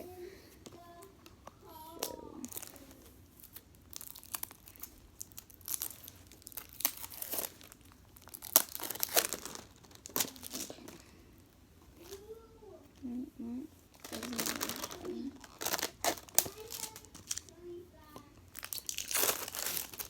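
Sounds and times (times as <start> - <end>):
plastic packaging crinkling and tearing: 1.8 - 11.1, 13.9 - 17.7, 18.5 - 20.0.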